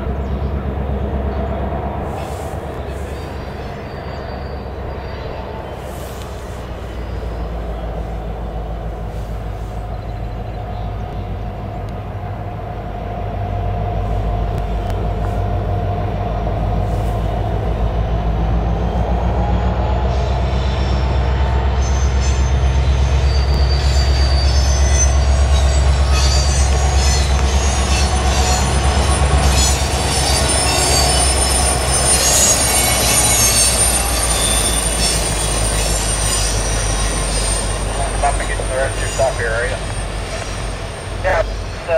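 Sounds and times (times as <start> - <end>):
diesel locomotive engine drone: 0.0 - 41.9
high-pitched wheel squeal: 18.6 - 41.9.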